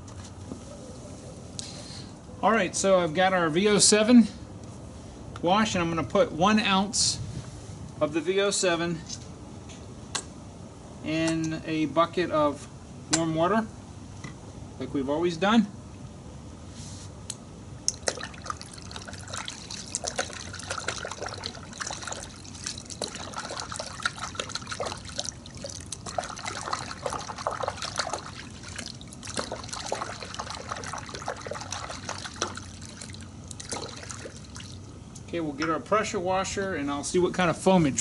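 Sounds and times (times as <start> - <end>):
liquid trickling into bucket: 17.9 - 35.0.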